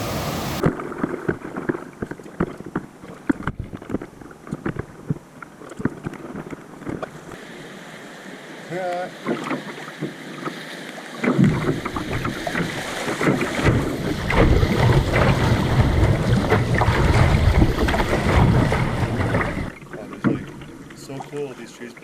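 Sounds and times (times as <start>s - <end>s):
rushing water: 0.0s - 22.0s
wind buffeting microphone: 11.4s - 20.8s.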